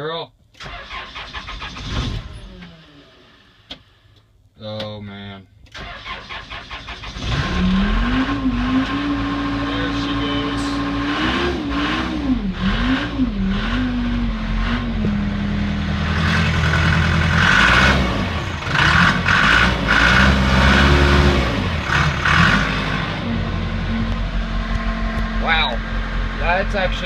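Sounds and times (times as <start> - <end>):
diesel engine running unevenly: 9.4 - 27.0.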